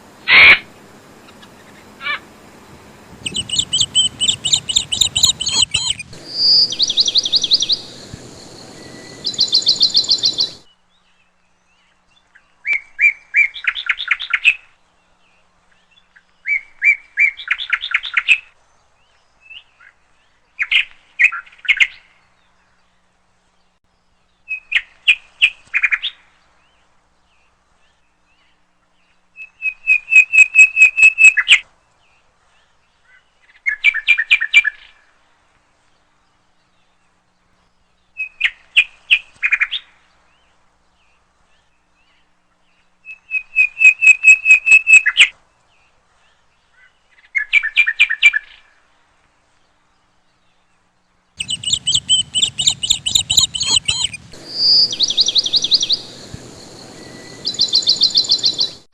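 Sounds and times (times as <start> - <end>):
low background rumble: 0.0 - 10.7, 51.4 - 58.9
songbird chirping: 0.0 - 14.5, 49.4 - 58.9.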